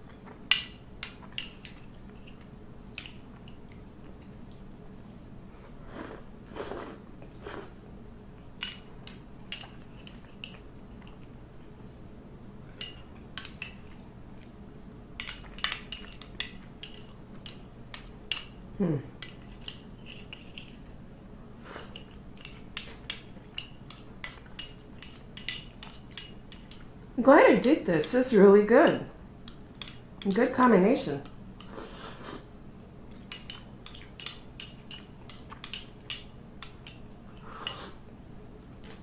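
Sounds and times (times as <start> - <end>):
utensils clinking against plate: 0.5 - 2.4, 8.6 - 11.3, 12.8 - 14.0, 15.2 - 18.6, 19.2 - 21.0, 21.9 - 26.9, 27.6 - 31.8, 33.2 - 37.9.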